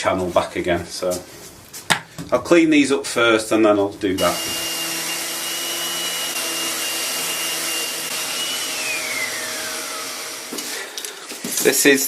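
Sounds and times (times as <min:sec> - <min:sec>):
vacuum cleaner whining: 0:04.2 - 0:11.6.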